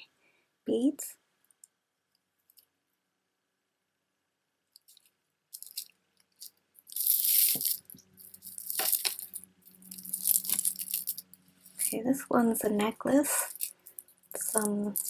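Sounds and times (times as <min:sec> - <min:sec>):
beads clicking: 0:04.8 - 0:12.0, 0:13.3 - 0:15.0
crinkly rattle of packaging: 0:04.9 - 0:12.0, 0:13.3 - 0:15.0.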